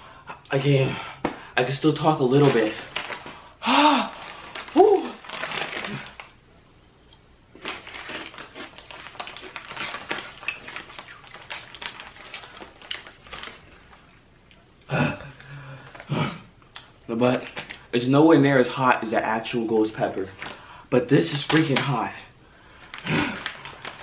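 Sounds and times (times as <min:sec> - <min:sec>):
chips crunching being eaten: 0:04.1 - 0:06.4, 0:07.5 - 0:14.0.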